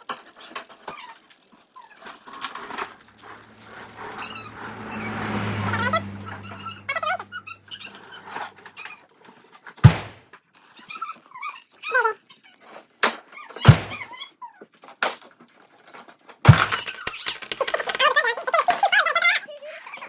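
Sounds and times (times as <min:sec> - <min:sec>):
clatter of small knocks: 0:16.5 - 0:18.3.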